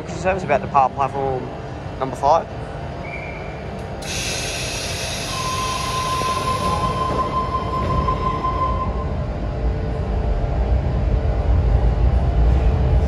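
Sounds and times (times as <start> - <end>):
steady high whine: 0.0 - 13.0
train rumble: 0.0 - 13.0
hiss of air: 4.0 - 7.1.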